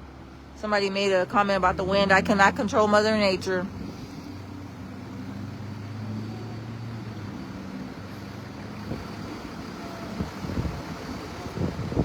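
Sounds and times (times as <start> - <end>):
wind buffeting microphone: 1.6 - 12.0.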